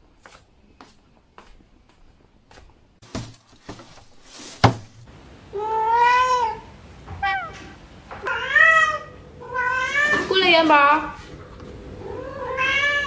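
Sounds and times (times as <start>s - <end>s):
cat meowing: 5.5s - 10.4s, 12.0s - 13.0s.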